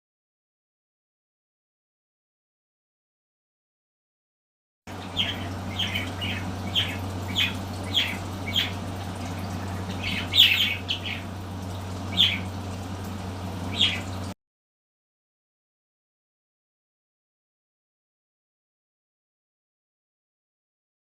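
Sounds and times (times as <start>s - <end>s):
birds calling sharply: 4.9s - 14.3s
low electrical hum: 4.9s - 14.4s.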